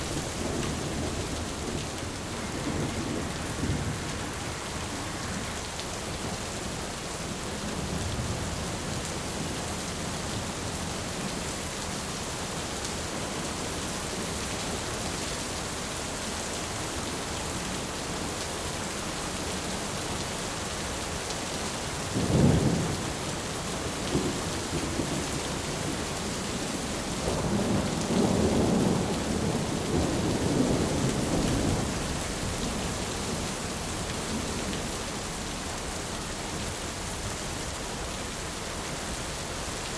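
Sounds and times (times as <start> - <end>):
thunder rumbling: 0.0 - 6.4
steady rainfall: 0.0 - 39.9.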